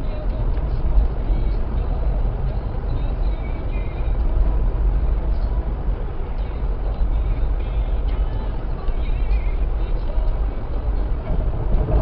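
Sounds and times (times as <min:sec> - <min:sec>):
road noise: 0:00.0 - 0:12.0
vehicle engine rumble: 0:00.0 - 0:12.0.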